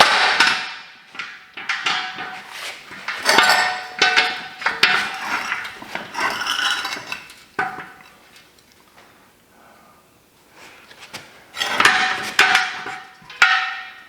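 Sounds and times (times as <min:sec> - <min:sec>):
heavy metal parts clanking: 0:01.2 - 0:08.0, 0:11.6 - 0:14.0.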